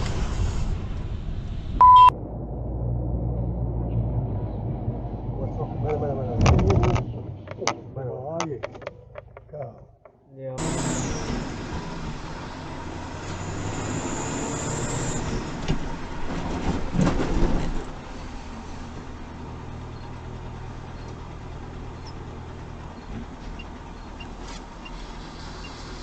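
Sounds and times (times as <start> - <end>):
vehicle engine and road noise: 0.0 - 26.0
burst of knocks and rumble: 2.2 - 10.2.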